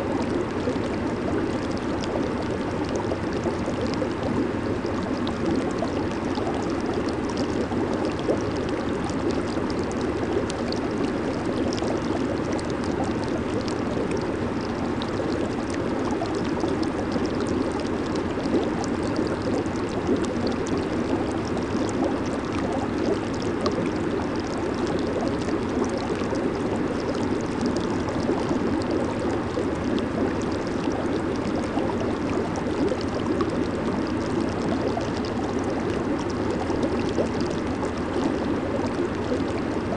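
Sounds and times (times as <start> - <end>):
bubbles fizzing: 0.0 - 39.9
hot tub jets churning water: 0.0 - 39.9.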